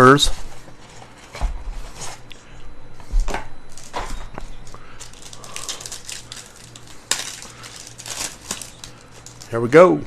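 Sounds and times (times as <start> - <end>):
rustling of card packs: 3.7 - 9.9.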